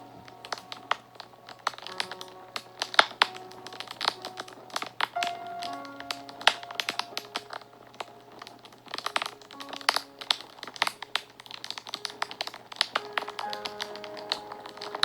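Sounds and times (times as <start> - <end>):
fire crackling and popping: 0.0 - 15.0
soft background music: 0.0 - 15.0.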